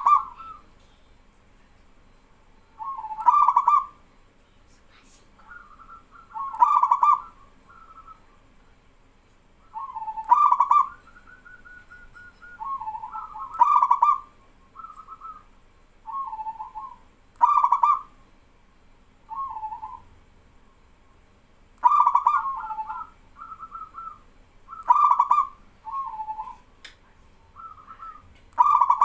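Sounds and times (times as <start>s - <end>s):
doves cooing: 0.0s - 0.7s, 2.8s - 4.0s, 5.4s - 8.3s, 9.8s - 15.5s, 16.1s - 18.1s, 19.3s - 20.1s, 21.8s - 26.8s, 27.5s - 29.0s.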